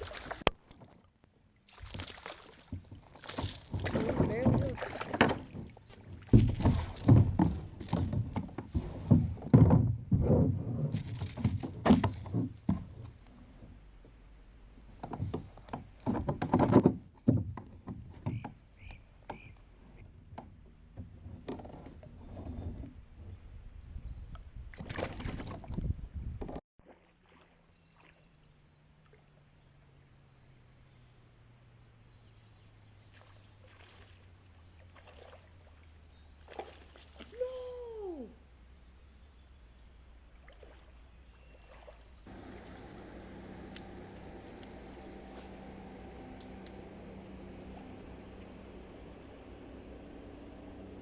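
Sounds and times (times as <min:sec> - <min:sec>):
water splashing: 0:00.0 - 0:09.5, 0:24.7 - 0:25.8, 0:26.8 - 0:29.5, 0:33.0 - 0:38.3, 0:40.3 - 0:49.2
faint low engine hum: 0:01.3 - 0:10.1, 0:27.2 - 0:51.0
gear knocking and rattling in kayak: 0:02.7 - 0:13.3, 0:14.8 - 0:23.0, 0:24.8 - 0:26.6.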